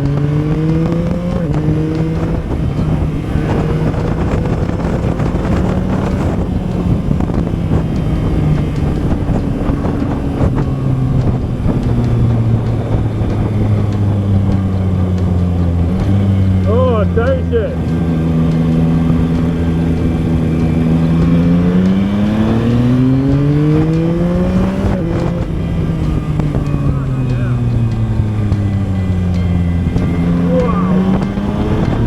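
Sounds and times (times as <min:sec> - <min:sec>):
motorcycle engine accelerating: 0:00.0 - 0:32.0
wind on microphone: 0:00.0 - 0:32.0.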